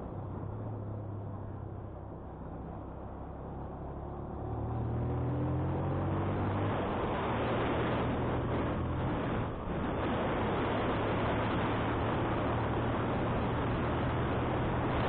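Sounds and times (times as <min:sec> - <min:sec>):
wind noise on microphone: 0:06.1 - 0:15.0.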